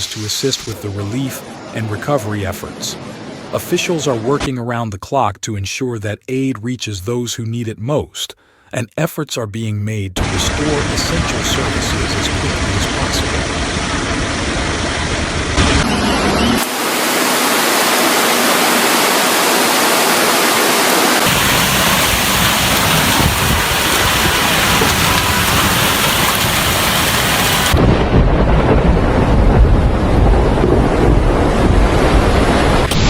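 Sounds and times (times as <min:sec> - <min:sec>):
heavy rain hissing: 0:00.0 - 0:04.4, 0:10.2 - 0:28.0
storm wind rumbling: 0:10.2 - 0:16.4, 0:21.2 - 0:33.0.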